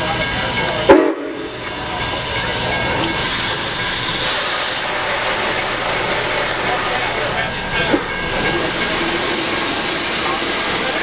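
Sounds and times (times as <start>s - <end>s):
steam locomotive hissing: 0.0s - 11.0s
loud short burst of steam: 3.2s - 11.0s.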